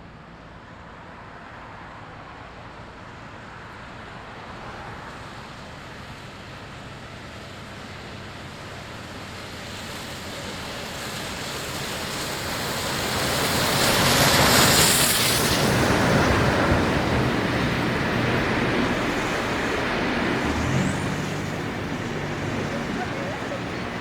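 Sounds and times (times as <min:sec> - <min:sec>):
steam train rushing past: 0:09.4 - 0:24.0.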